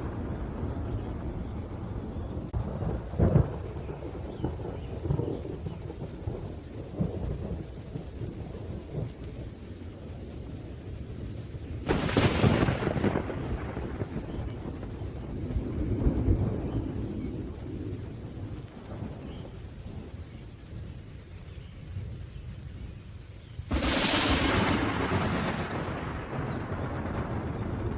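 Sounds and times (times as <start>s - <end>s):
loud thunderclap: 0.0s - 9.2s, 11.8s - 19.4s, 23.7s - 27.9s
rolling thunder: 0.0s - 22.6s, 23.6s - 27.9s
steady rain: 0.0s - 27.9s.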